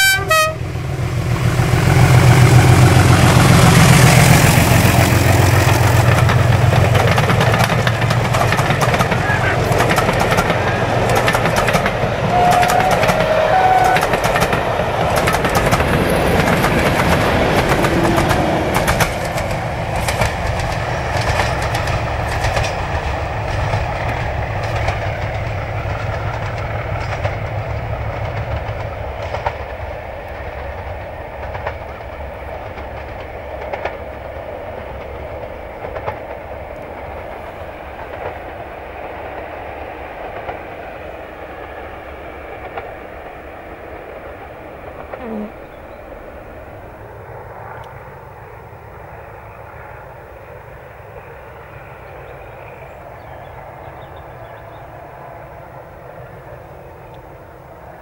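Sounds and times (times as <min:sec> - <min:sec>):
train passing close by: 0:00.0 - 0:58.0
wheels clicking over rail joints: 0:01.5 - 0:40.8.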